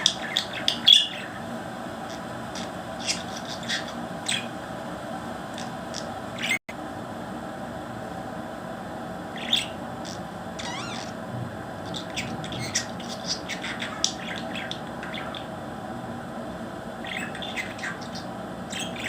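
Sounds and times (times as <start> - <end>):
parrot calling and chirping: 0.0 - 4.6, 5.5 - 6.6, 9.3 - 11.2, 11.8 - 15.6, 17.0 - 19.0.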